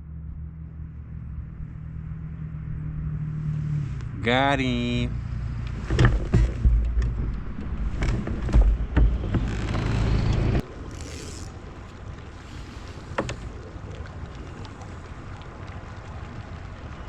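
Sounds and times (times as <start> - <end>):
water noise: 0.8 - 17.0
wind buffeting microphone: 1.2 - 17.0
knocks and clicks of handling: 5.8 - 10.5.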